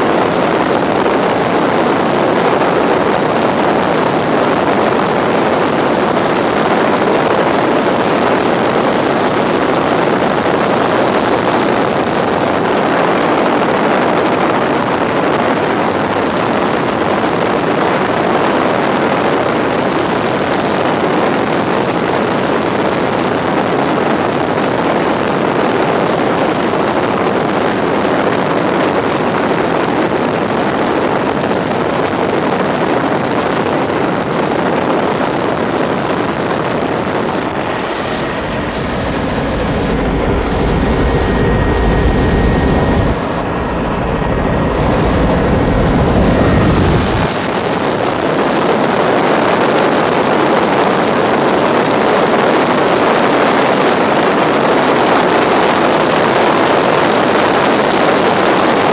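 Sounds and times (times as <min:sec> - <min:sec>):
helicopter engine and rotor: 0:00.0 - 0:58.9.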